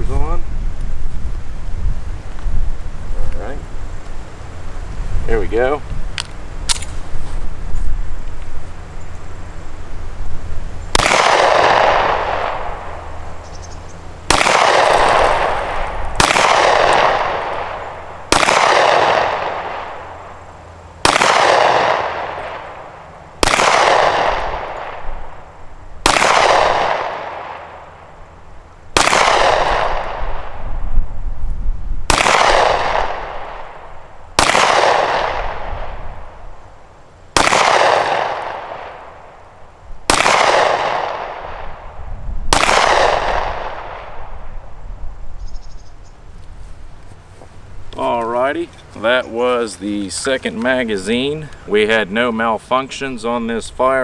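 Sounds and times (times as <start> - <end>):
pistol shots echoing: 10.9 - 13.4, 14.2 - 20.4, 21.0 - 25.4, 26.0 - 28.0, 29.0 - 30.5, 34.4 - 36.0, 37.4 - 39.4, 40.1 - 41.9, 42.5 - 44.2.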